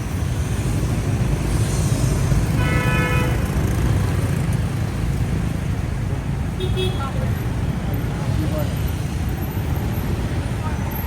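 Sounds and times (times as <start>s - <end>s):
street traffic rumble: 0.0s - 11.0s
vehicle horn tooting: 2.6s - 3.4s.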